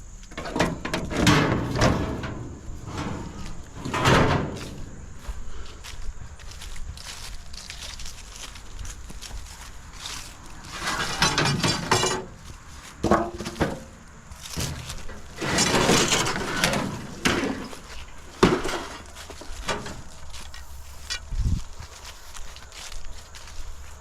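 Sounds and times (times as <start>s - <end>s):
scrap metal clattering: 0.3s - 5.4s, 10.1s - 21.2s.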